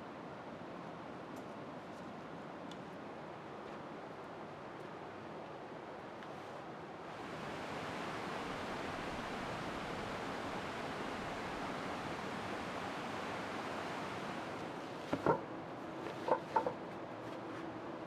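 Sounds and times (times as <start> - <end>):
heavy rain falling: 7.2 - 14.8.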